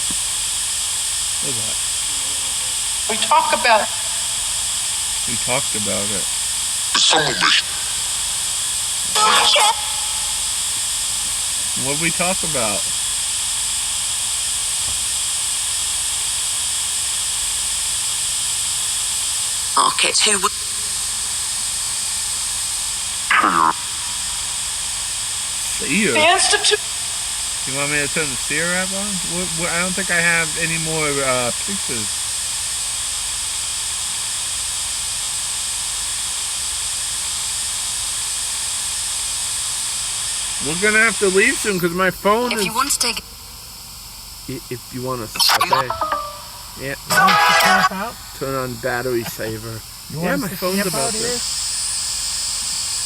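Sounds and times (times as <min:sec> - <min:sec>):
loud static hiss: 0:00.0 - 0:53.0
steady background hiss: 0:01.1 - 0:06.3, 0:08.9 - 0:13.0, 0:25.4 - 0:32.2, 0:40.6 - 0:43.6, 0:44.4 - 0:51.5.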